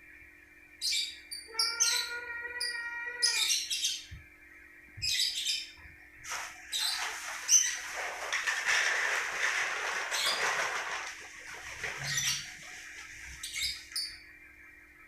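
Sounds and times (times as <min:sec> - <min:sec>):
lovebird chirping: 0:00.8 - 0:04.2, 0:13.4 - 0:14.2
rustling or flapping: 0:06.2 - 0:13.6.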